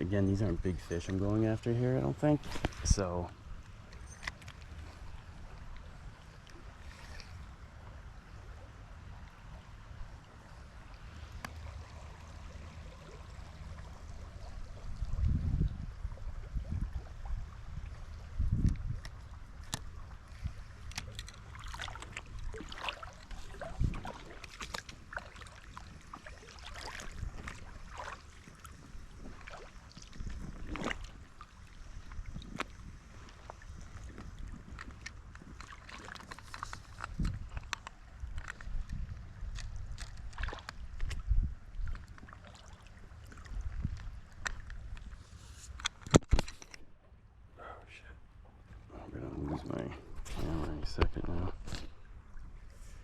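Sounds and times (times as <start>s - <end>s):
river water running: 0.0s - 53.0s
wind on microphone: 14.3s - 21.1s, 22.1s - 35.7s, 36.5s - 42.0s, 43.4s - 45.2s.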